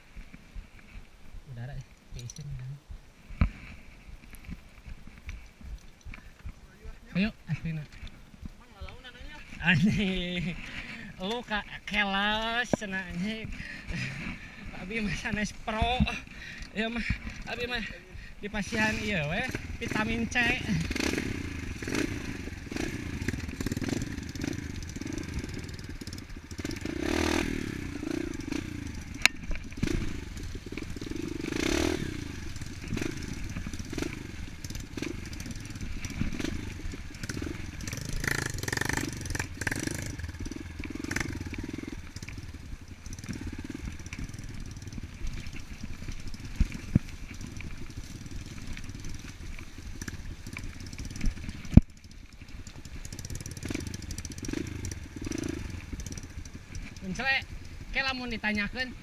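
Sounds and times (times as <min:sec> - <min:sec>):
dirt bike engine revving: 0:12.3 - 0:59.0.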